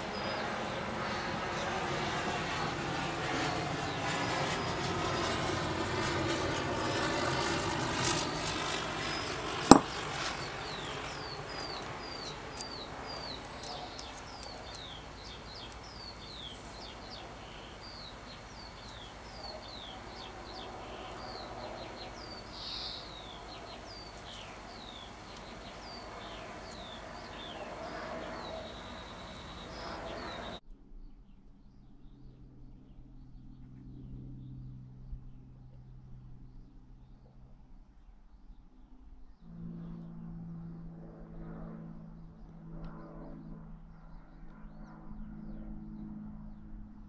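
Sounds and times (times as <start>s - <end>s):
low engine drone: 0.0s - 30.6s, 31.8s - 37.2s, 39.2s - 47.0s
small bird chirping: 7.5s - 30.6s.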